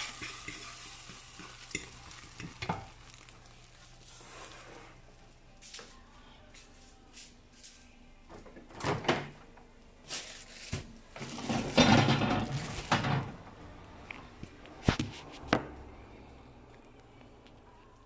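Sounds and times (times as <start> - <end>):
rustling and scraping: 3.7 - 5.8, 10.0 - 13.4, 14.8 - 15.6
drawers and cupboards knocking: 11.2 - 13.4.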